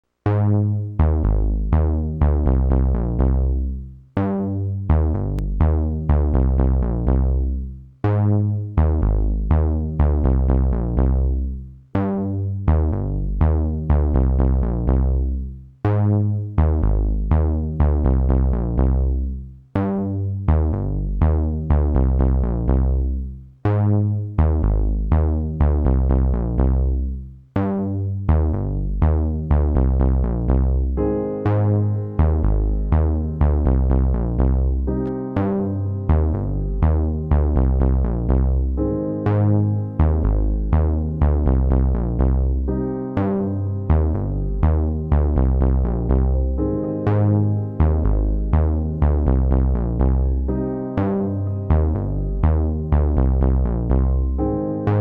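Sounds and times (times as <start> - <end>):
electronic music with heavy bass: 28.5 - 55.0.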